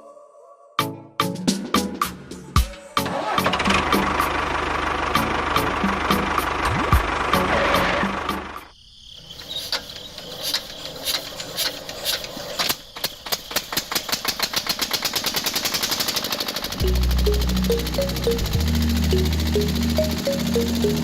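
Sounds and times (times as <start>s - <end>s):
loud mechanical running noise: 3.2s - 8.7s, 14.3s - 21.0s
sharp clicks speeding up: 13.3s - 21.0s.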